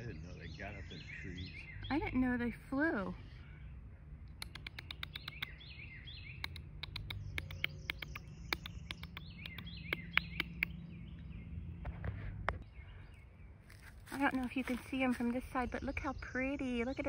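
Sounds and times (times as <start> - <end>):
small birds chirping: 0.0 - 17.0
sharp clicks: 4.3 - 5.6, 6.4 - 10.8.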